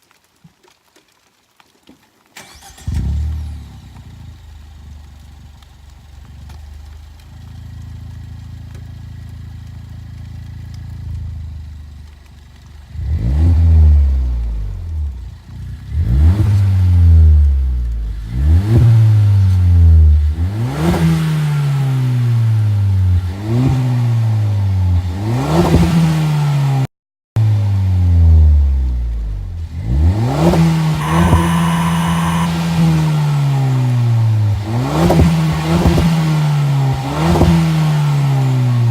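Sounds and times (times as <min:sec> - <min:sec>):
car engine revving: 0:15.9 - 0:17.3, 0:18.2 - 0:22.4, 0:29.6 - 0:38.8
car engine idling: 0:31.0 - 0:34.7.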